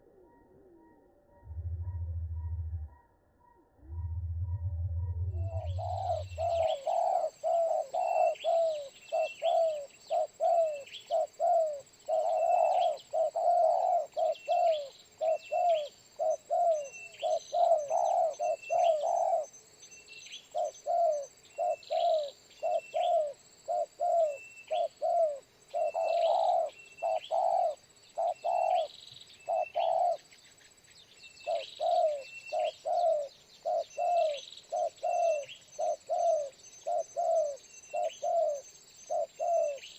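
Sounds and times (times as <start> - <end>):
high chirps: 3.8 - 6.8
doves cooing: 3.8 - 19.5, 20.5 - 30.3, 31.4 - 39.9.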